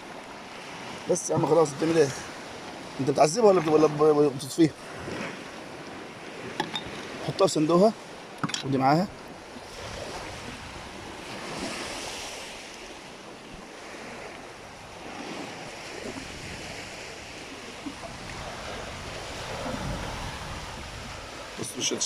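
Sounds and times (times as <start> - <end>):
sea waves washing on shore: 0.0 - 22.0
wind buffeting microphone: 8.3 - 12.6, 14.2 - 22.0.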